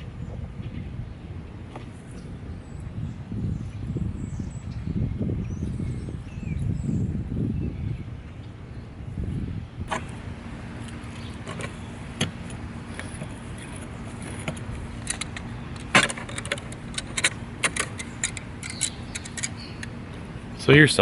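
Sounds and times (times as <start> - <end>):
steady low hum: 0.0 - 21.0
metal tools clinking: 15.0 - 19.9.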